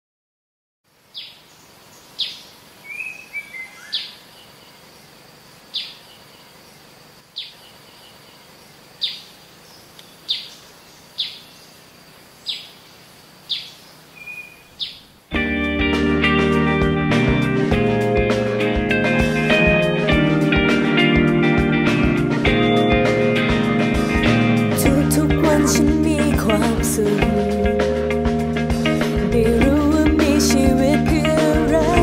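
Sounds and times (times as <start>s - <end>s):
faint outdoor background: 0.8s - 32.0s
soft bird chirps: 1.1s - 15.2s.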